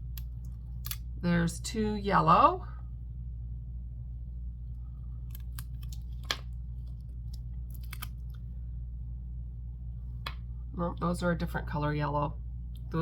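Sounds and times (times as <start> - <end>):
steady low hum: 0.0 - 13.0
plastic pieces and packaging clicking: 5.3 - 8.4.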